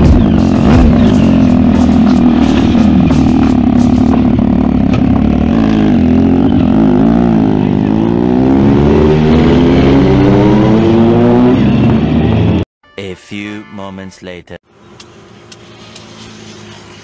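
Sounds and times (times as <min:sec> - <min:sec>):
motorcycle engine accelerating: 0:00.0 - 0:12.6.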